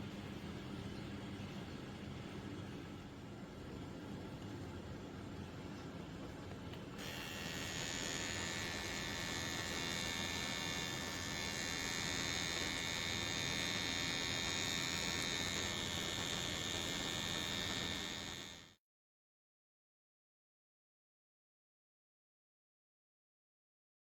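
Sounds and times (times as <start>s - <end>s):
electric pet clipper whining: 7.0s - 18.8s.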